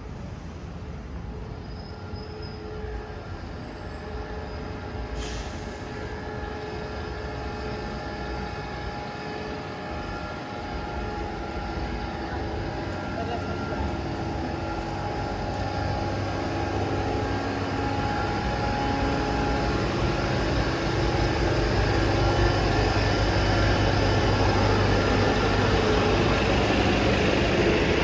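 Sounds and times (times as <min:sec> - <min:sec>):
electric train running: 0:06.0 - 0:28.0.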